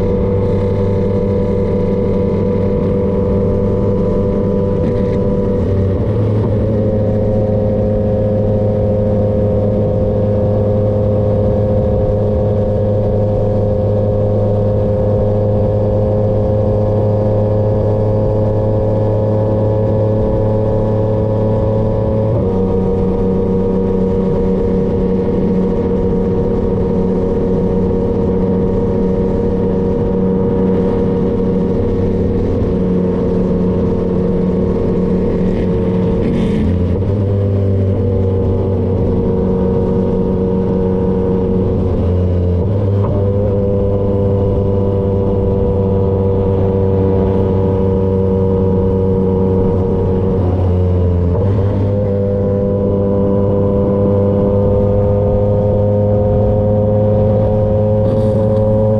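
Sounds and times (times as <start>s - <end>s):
motorcycle engine cruising: 0.0s - 58.9s.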